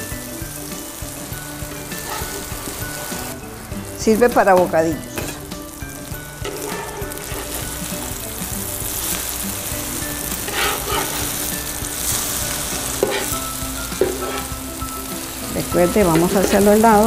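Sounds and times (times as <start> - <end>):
patties sizzling in a pan: 0.0 - 17.0
metal spatula scraping pan: 1.7 - 3.3, 6.4 - 7.9, 10.1 - 14.6.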